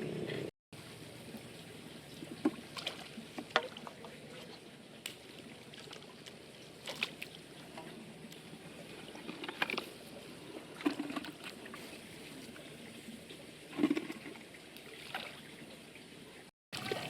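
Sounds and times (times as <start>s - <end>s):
water sloshing and lapping: 0.9s - 17.0s
sharp water splashes: 16.8s - 17.0s.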